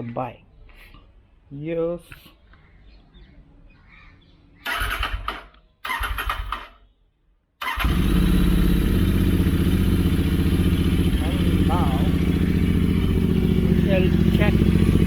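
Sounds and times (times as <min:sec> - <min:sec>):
motorcycle engine cranking: 0:04.7 - 0:06.8, 0:07.6 - 0:15.0
motorcycle engine running loudly: 0:07.8 - 0:15.0.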